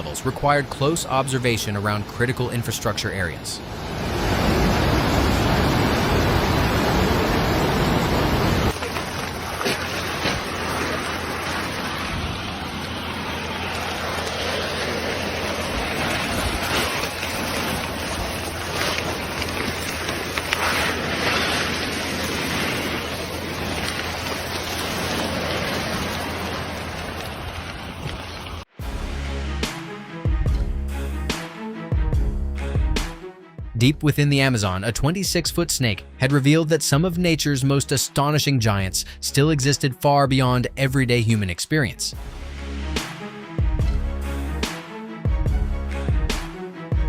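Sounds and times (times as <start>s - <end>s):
floodwater rushing: 0.0s - 28.7s
wind on microphone: 3.7s - 28.6s.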